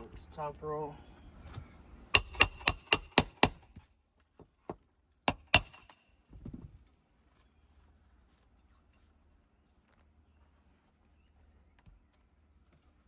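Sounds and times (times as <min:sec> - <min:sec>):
hammer blows on nails: 0:02.2 - 0:03.8, 0:05.3 - 0:06.0.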